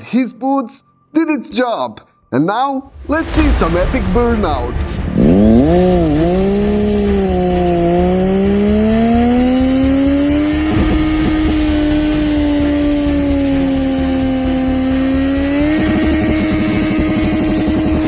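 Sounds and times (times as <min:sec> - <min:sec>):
steady rush of noise: 0:02.9 - 0:09.4, 0:17.6 - 0:18.0
engine revving: 0:03.0 - 0:18.0.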